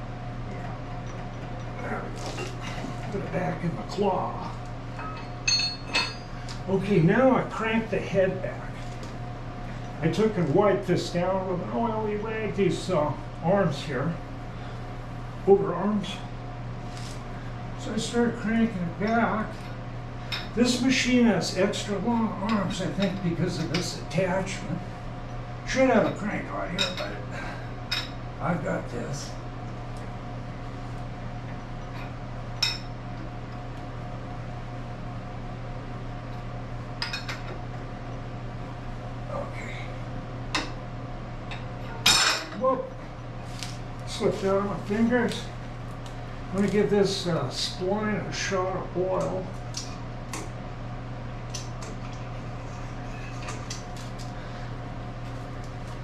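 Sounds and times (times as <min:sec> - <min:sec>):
steady low hum: 0:00.0 - 0:56.0
wrench clinking against metal: 0:05.0 - 0:06.3.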